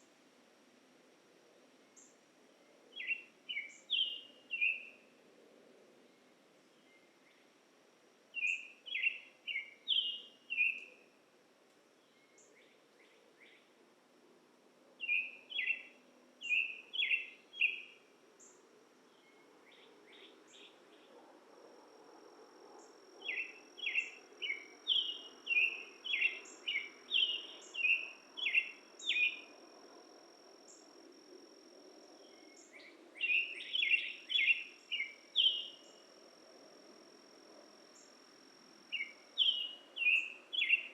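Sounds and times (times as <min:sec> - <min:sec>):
songbird chirping: 0:01.8 - 0:05.1, 0:08.3 - 0:11.0, 0:15.0 - 0:21.3, 0:22.8 - 0:36.2, 0:36.9 - 0:40.9.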